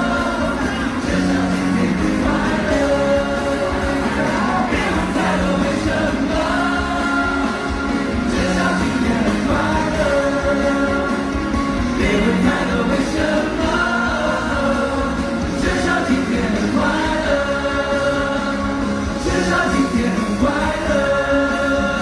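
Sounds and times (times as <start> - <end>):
live pop-rock band playing: 0.0 - 22.0.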